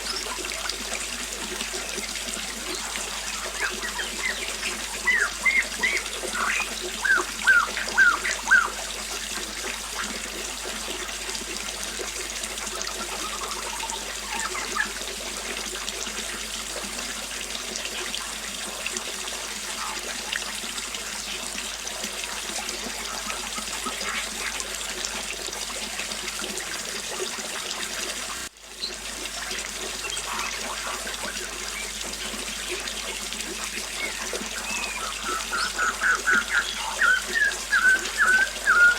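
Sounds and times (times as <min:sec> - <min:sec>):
birds chirping: 0:00.0 - 0:00.5, 0:01.7 - 0:08.8, 0:12.9 - 0:15.0, 0:19.7 - 0:20.2, 0:30.0 - 0:38.9
small waterfall splashing: 0:00.0 - 0:38.9.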